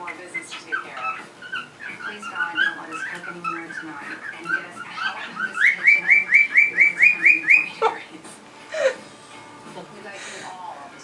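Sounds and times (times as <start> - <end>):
pet bird whistling: 0.0 - 7.9.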